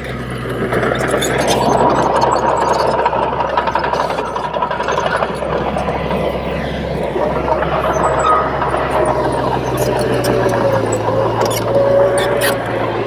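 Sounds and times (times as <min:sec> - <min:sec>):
bulldozer diesel engine running: 0:00.0 - 0:13.0
thin whine: 0:03.8 - 0:13.0.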